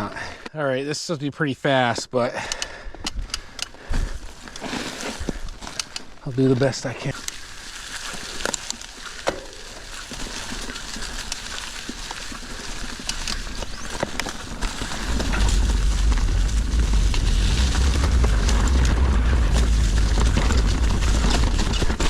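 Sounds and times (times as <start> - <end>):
bike tyres crackling over stones: 3.4 - 22.0
bike rattling with clicks: 4.4 - 6.6, 7.2 - 22.0
wind rumble on microphone: 13.4 - 22.0.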